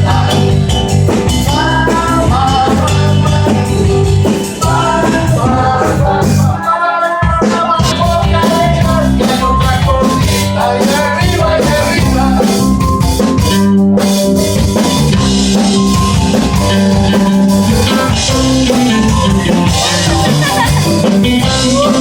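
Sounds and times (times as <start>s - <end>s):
person singing: 0.0s - 12.9s, 14.8s - 22.0s
drum kit: 0.0s - 22.0s
live band playing: 0.0s - 22.0s.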